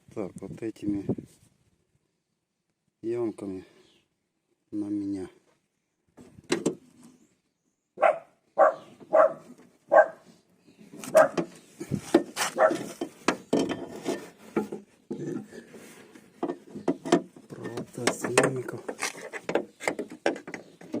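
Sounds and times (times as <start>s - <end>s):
dog barking: 8.0s - 10.2s, 11.1s - 11.5s, 12.5s - 12.9s
parts clicking and knocking: 11.0s - 15.5s, 16.3s - 21.0s.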